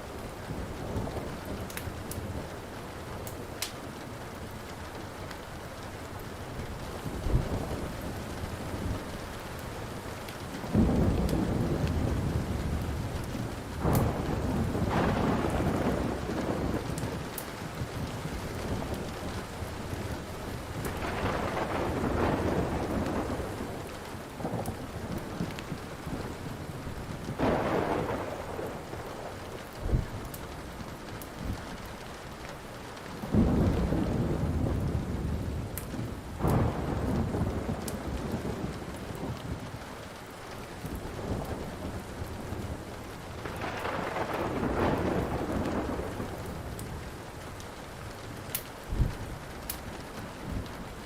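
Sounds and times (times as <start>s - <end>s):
steady rain: 0.0s - 51.0s
wood fire crackling: 0.0s - 51.0s
thunder rolling: 10.7s - 30.4s, 33.3s - 39.8s, 40.9s - 47.1s.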